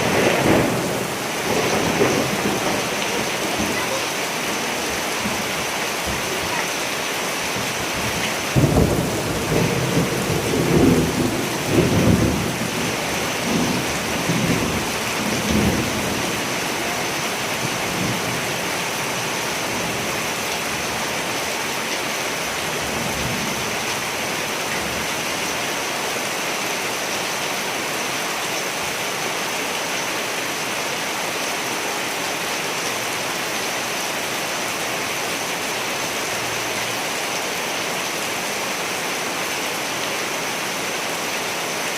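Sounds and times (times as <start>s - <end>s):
thunder rumbling and cracking: 0.0s - 6.5s, 7.5s - 20.2s
heavy rain: 0.0s - 41.9s.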